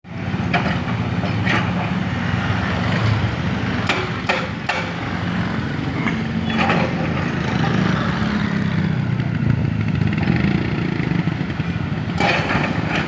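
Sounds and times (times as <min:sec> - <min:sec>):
engine running: 0:00.1 - 0:13.0
sharp knocks or clanks: 0:03.0 - 0:05.1, 0:12.1 - 0:13.0.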